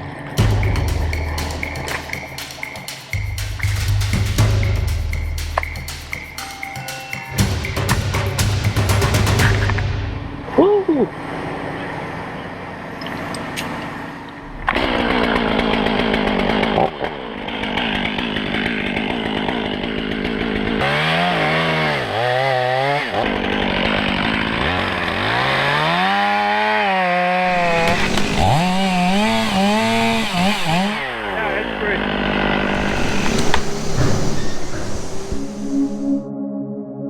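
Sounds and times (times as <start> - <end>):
chainsaw revving: 15.4 - 31.4, 32.6 - 36.1.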